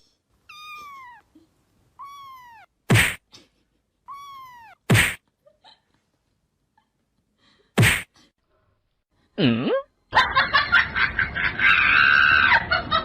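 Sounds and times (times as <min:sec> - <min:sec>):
cat meowing: 0:00.5 - 0:01.3, 0:02.0 - 0:02.8, 0:04.1 - 0:04.9.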